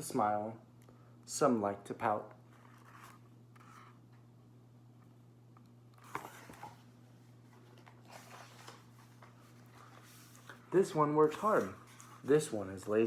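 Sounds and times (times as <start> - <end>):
low steady hum: 0.0 - 13.0
book page turning: 2.5 - 4.0, 6.0 - 6.9, 7.5 - 13.0.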